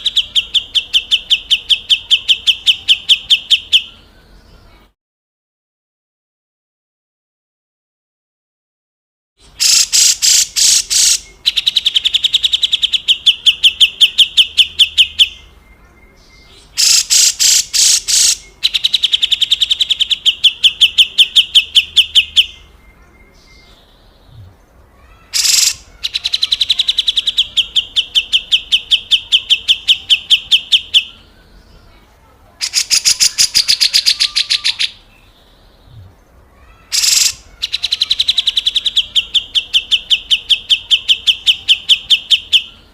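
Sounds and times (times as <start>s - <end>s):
bulbul harsh rattling call: 9.5s - 13.1s, 16.7s - 20.4s, 25.1s - 28.6s, 32.6s - 35.0s, 36.8s - 40.6s.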